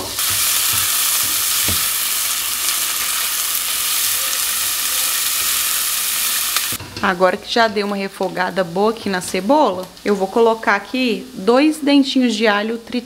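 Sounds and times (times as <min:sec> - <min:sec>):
onion sizzling in a pan: 0:00.0 - 0:06.8.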